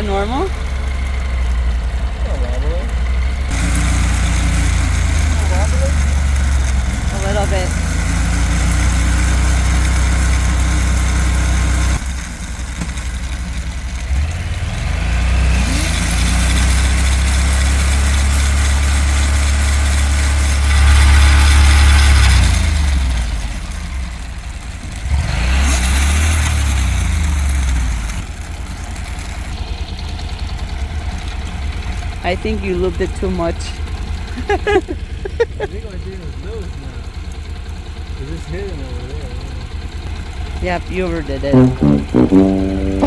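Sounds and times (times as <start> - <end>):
motorcycle engine revving: 3.5 - 12.0.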